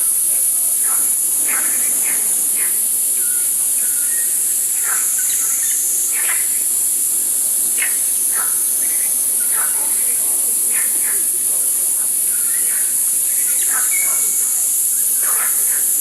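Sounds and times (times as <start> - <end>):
high-pitched insect drone: 0.0 - 16.0
bird chirps: 0.8 - 6.6, 12.3 - 14.6.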